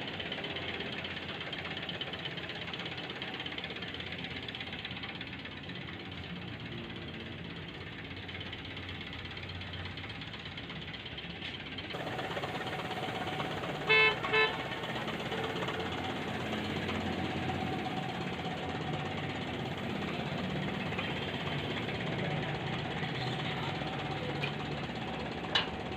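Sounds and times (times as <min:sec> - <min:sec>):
vehicle horn toots: 0:13.7 - 0:15.1.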